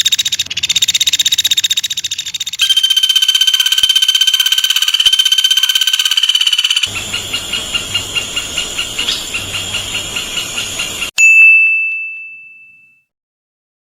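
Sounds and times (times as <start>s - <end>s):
fast trill: 0.0s - 6.9s
woodpecker calling: 0.0s - 11.0s
loud ringing tone: 2.6s - 6.9s.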